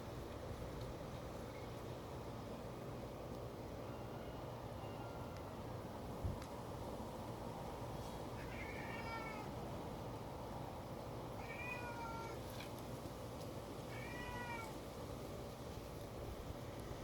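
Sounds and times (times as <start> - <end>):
kitten meowing: 8.4 - 9.5, 11.4 - 12.4, 13.9 - 14.7.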